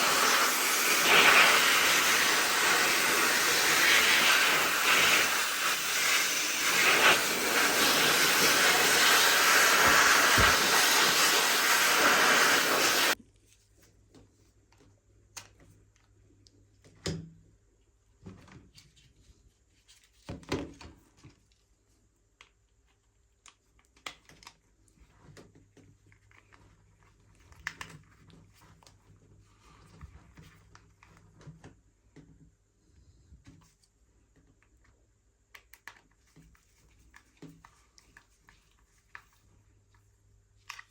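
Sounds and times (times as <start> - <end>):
loud hiss of blowing air: 0.0 - 13.2.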